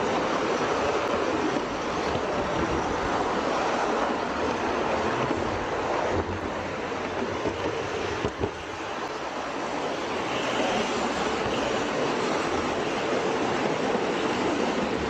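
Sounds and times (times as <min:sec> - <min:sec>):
train wheels rolling on rails: 0:00.0 - 0:15.0.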